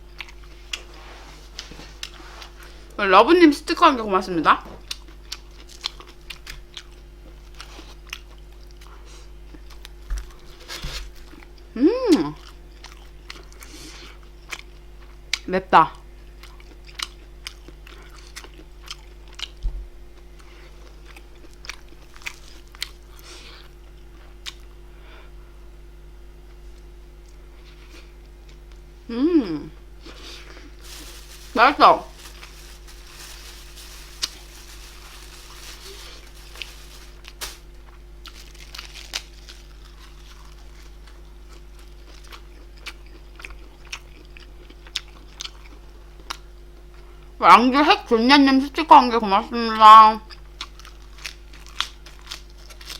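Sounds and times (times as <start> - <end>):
person chewing food: 4.9 - 9.0, 12.4 - 13.8, 16.4 - 19.6, 32.1 - 46.4
food crunching: 30.2 - 45.8.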